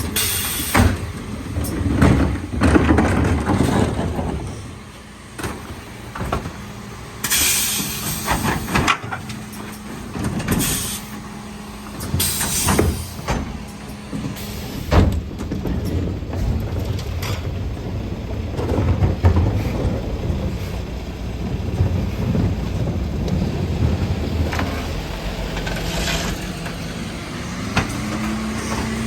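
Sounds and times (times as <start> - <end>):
knocks and clanks: 0.0 - 29.0
truck engine humming: 0.0 - 29.0
hissing air blasts: 7.2 - 8.4.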